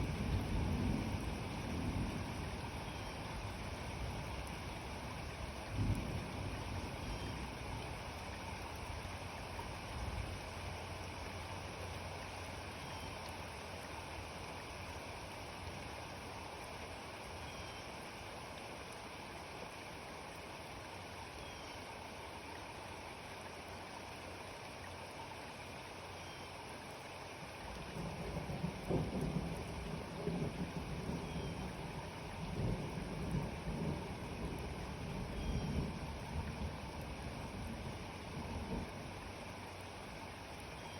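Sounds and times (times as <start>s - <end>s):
distant thunder rumble: 0.0s - 7.6s, 28.0s - 39.2s
steady rain falling: 0.0s - 40.9s.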